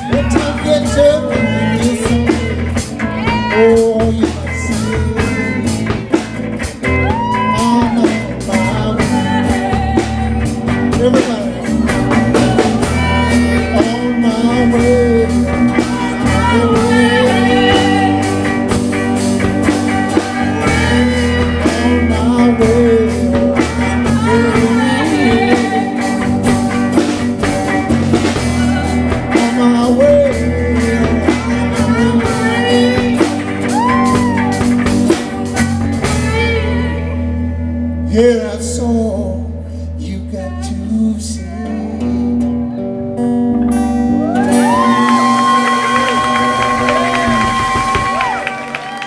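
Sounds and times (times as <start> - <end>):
live blues-rock band: 0.0 - 49.0
voices singing: 7.0 - 27.0, 28.4 - 37.1.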